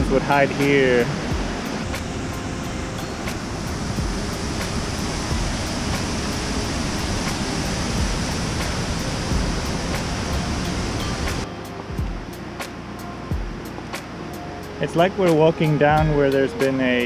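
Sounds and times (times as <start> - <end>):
waterfall rushing: 0.0 - 11.5.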